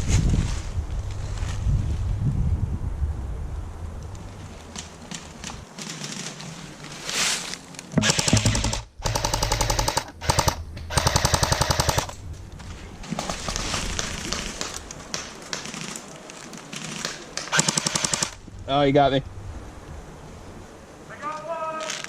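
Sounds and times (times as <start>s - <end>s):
airsoft gun firing bursts: 8.0s - 12.2s, 17.4s - 18.4s.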